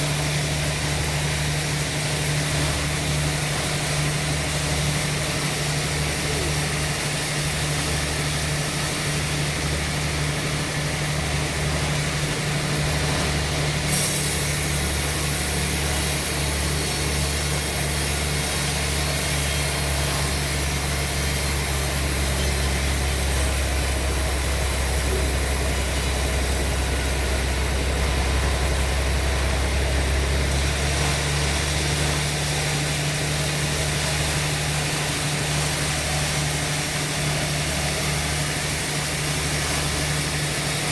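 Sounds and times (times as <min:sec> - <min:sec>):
engine hum: 0:00.0 - 0:40.9
saw and machine hiss: 0:13.8 - 0:40.9.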